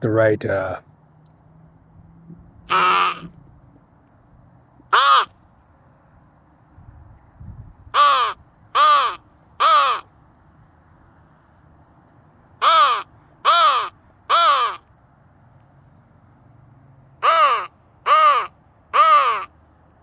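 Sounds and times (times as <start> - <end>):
crow call caws: 2.7 - 3.3, 4.9 - 5.4, 8.0 - 10.1, 12.6 - 14.9, 17.2 - 19.5.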